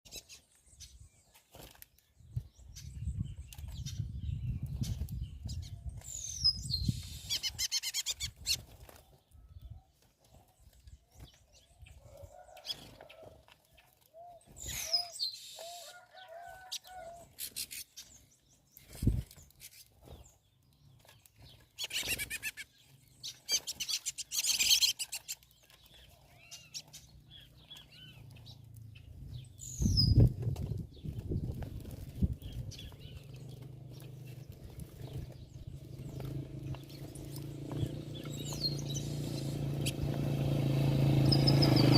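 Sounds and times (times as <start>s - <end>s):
high falling bird chirps: 2.3s - 8.7s, 14.2s - 19.9s, 21.6s - 41.9s
bird wings flapping: 30.2s - 37.9s.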